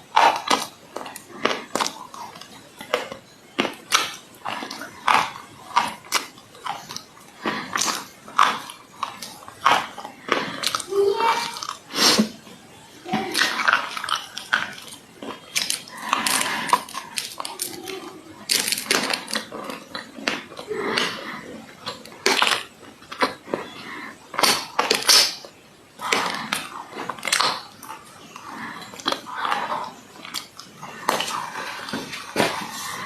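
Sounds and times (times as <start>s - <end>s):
dry clay crunching: 13.1s - 33.0s.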